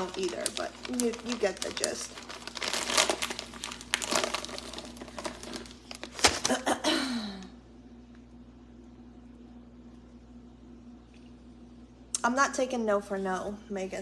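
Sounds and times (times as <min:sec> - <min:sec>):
close crinkling and rustling: 0:00.0 - 0:06.6.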